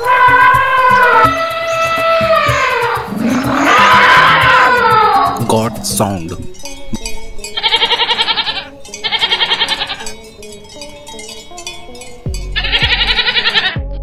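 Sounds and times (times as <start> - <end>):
goats bleating: 0.0 - 5.9, 7.6 - 10.2, 12.6 - 13.8
background music: 0.0 - 14.0.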